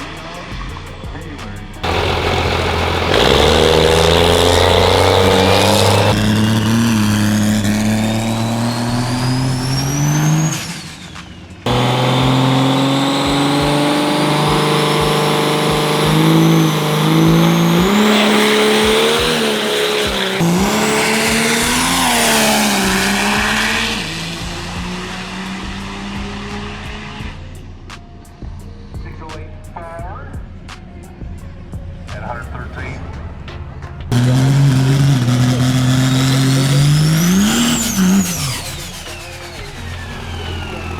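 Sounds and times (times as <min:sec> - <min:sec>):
diesel trucks accelerating: 0:00.0 - 0:29.5, 0:30.5 - 0:40.9
thin rising whine: 0:01.8 - 0:27.6, 0:34.1 - 0:40.9.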